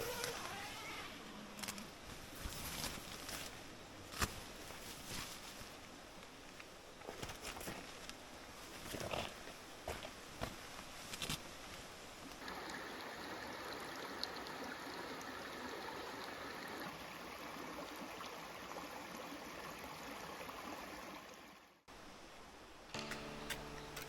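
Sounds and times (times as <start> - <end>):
stream flowing: 12.4 - 24.0
music: 23.0 - 24.0.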